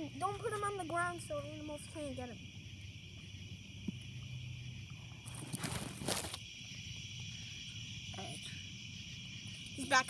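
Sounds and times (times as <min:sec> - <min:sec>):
night insects trilling: 0:00.0 - 0:10.0
rustling: 0:05.2 - 0:06.4.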